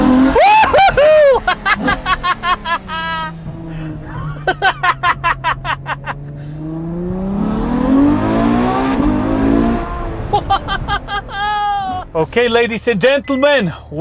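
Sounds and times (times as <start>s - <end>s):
sports car engine revving: 0.0s - 13.0s
exhaust crackles: 0.0s - 13.8s.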